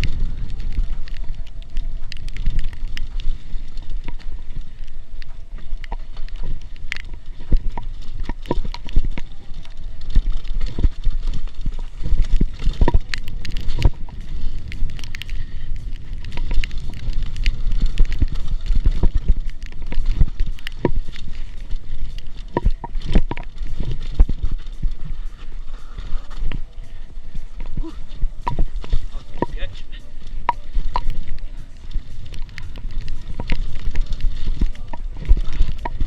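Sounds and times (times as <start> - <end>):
bike knocks and rattles on rocks: 0.0 - 26.6
wind and rolling noise: 0.0 - 36.0.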